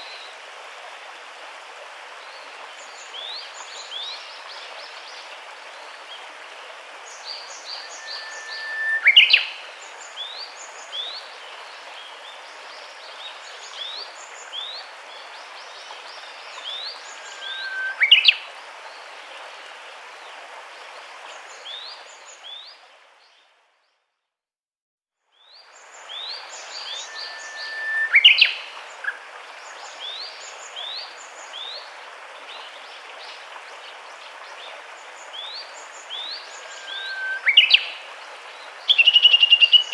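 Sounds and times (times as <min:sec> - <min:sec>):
steady background hiss: 0:25.7 - 0:39.9.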